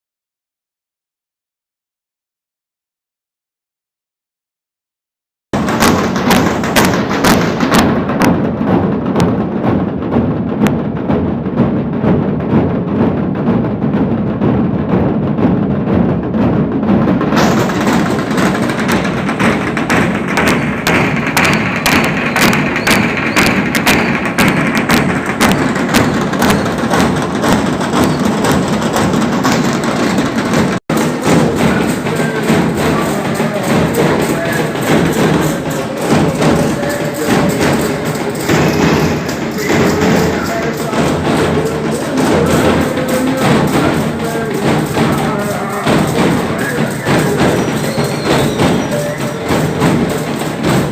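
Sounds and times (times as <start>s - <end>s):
procession drums beating fast: 5.6s - 50.9s.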